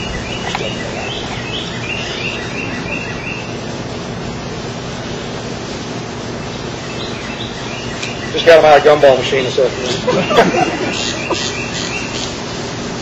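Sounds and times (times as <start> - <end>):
songbird chirping: 0.0 - 3.7, 6.3 - 12.4
outdoor background hiss: 0.0 - 13.0.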